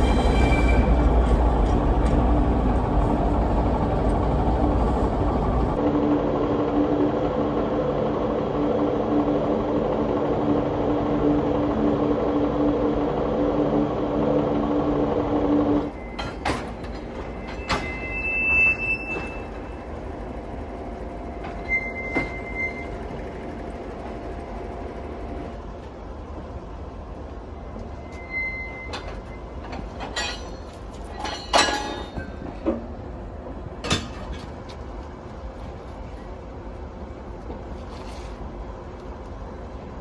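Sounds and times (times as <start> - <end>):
train wheel squeals: 0.0 - 1.8, 15.8 - 20.0, 21.4 - 23.5, 27.8 - 32.2
low train rumble: 0.0 - 40.0
loud steady hum: 1.9 - 16.9
metallic clanks and knocks: 16.2 - 18.1, 28.9 - 32.9, 33.8 - 34.8.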